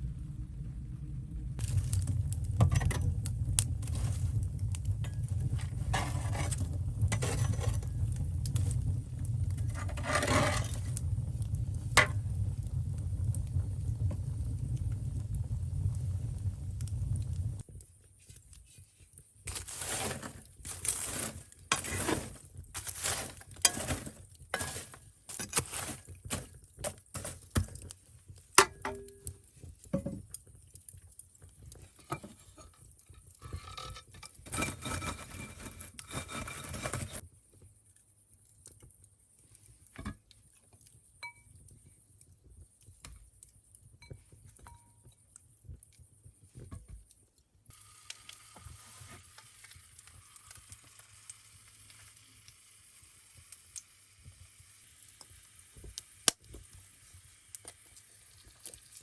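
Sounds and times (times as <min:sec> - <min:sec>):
kitchenware scraping: 0:05.5 - 0:07.9, 0:19.6 - 0:26.0, 0:33.4 - 0:37.2.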